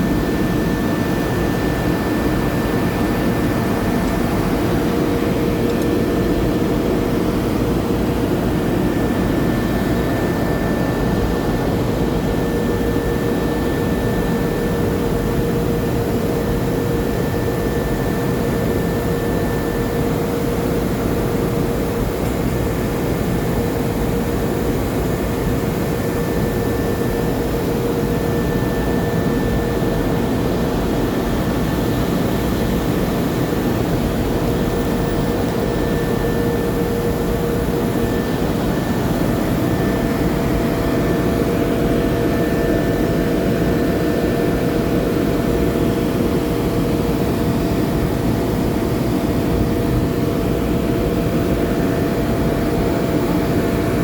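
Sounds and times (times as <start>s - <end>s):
welding hiss and hum: 18.4s - 42.2s, 47.1s - 54.0s.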